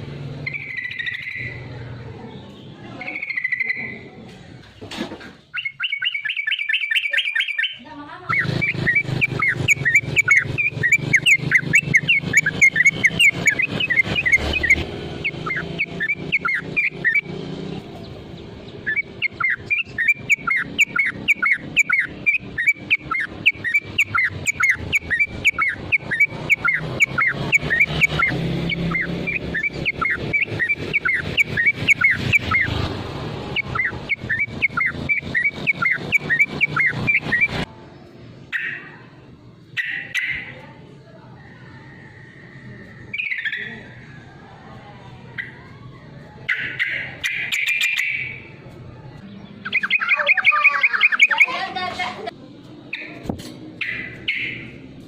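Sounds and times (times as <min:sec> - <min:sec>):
bird singing trills and chirps: 0:00.2 - 0:52.3, 0:52.9 - 0:55.0.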